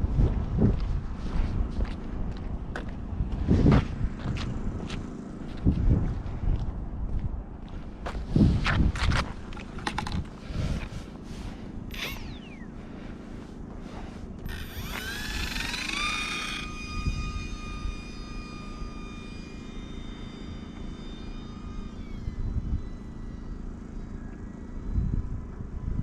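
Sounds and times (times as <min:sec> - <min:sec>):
wind on microphone: 0:00.0 - 0:11.2, 0:14.4 - 0:20.4, 0:21.2 - 0:23.6, 0:24.8 - 0:26.0
rc airplane motor whine: 0:08.2 - 0:26.0.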